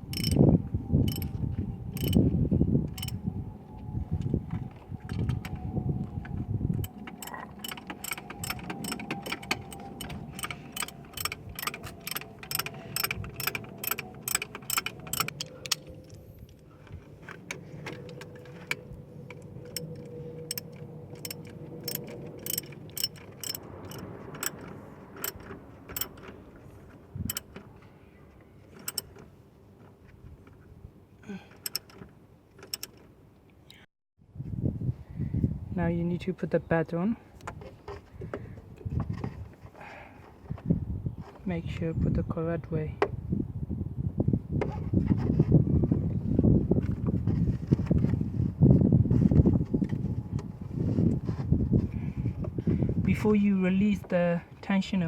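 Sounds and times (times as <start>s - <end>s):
ratchet wrench clicking: 0.1s - 0.4s, 1.1s - 1.3s, 2.0s - 2.2s, 6.8s - 15.8s, 20.5s - 24.6s.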